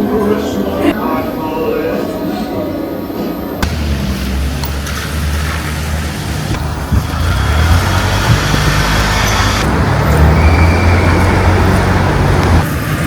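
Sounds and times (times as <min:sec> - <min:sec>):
road noise: 0:00.0 - 0:13.0
vehicle engine rumbling: 0:03.6 - 0:13.0.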